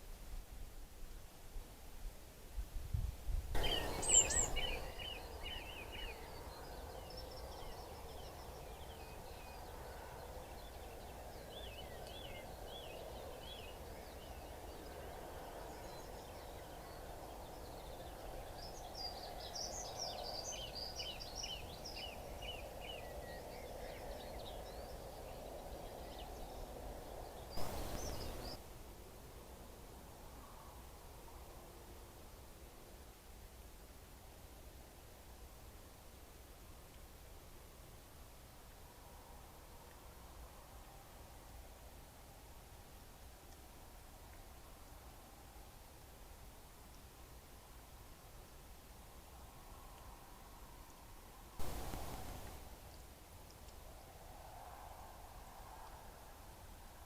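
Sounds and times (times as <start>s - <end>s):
small birds chirping: 3.6s - 28.6s, 51.6s - 53.1s
short rush of noise: 27.6s - 28.6s, 51.6s - 52.9s.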